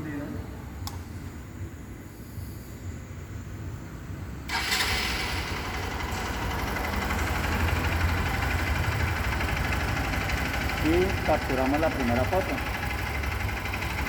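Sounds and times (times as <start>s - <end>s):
motorcycle engine idling: 4.5s - 14.0s.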